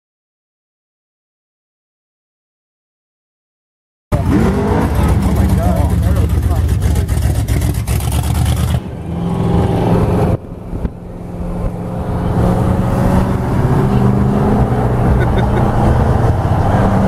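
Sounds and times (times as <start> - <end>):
car engine rumble: 4.1 - 17.0.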